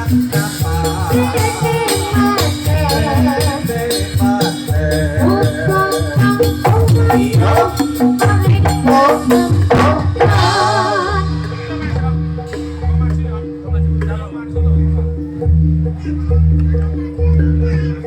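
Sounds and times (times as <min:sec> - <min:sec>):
gamelan music over sound system: 0:00.0 - 0:18.0.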